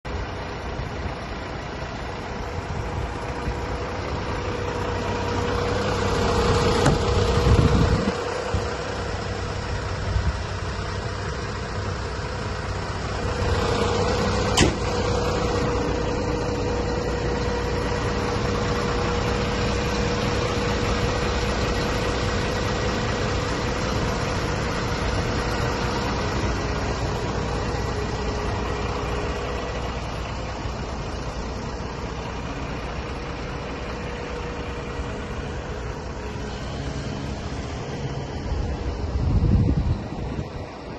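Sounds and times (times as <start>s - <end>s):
diesel truck engine idling: 0.0s - 40.9s
sharp click: 14.5s - 14.8s.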